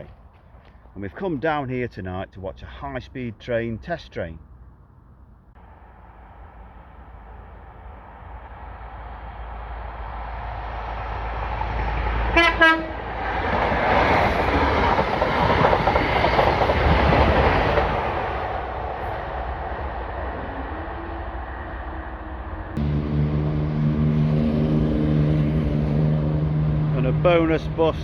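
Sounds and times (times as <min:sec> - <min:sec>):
diesel train rumble: 0:02.3 - 0:28.0
train passing with wheel noise: 0:05.6 - 0:28.0
train horn blasts: 0:12.3 - 0:13.1, 0:22.8 - 0:27.5.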